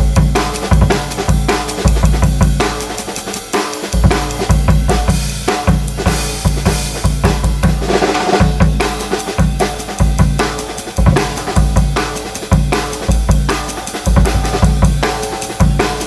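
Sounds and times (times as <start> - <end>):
bass drum kicks: 4.0 - 16.0.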